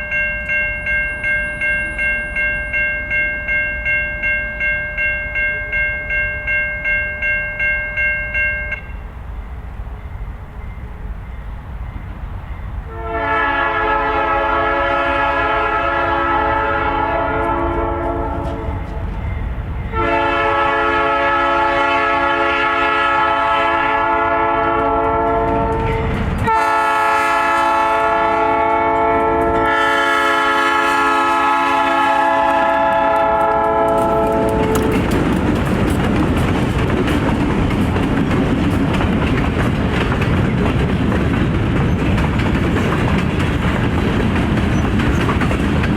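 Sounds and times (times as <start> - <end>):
train rumbling past: 0.0 - 45.9
locomotive horn blasts: 12.9 - 19.0, 19.9 - 35.1.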